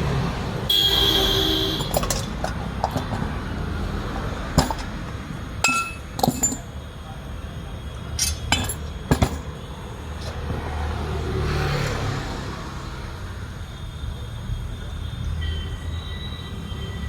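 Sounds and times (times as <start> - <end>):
road vehicle passing: 0.0 - 14.0
traffic rumble: 0.0 - 17.0
metallic clinks: 1.2 - 6.9, 8.1 - 9.6.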